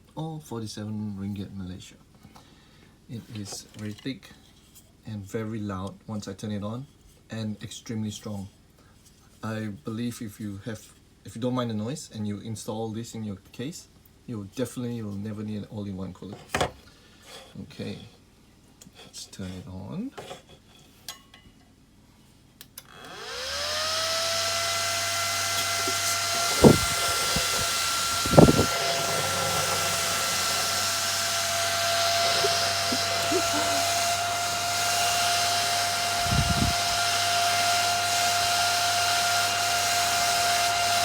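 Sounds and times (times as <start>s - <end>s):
case fan whining: 22.9s - 41.0s
sharp thumps: 25.6s - 34.5s.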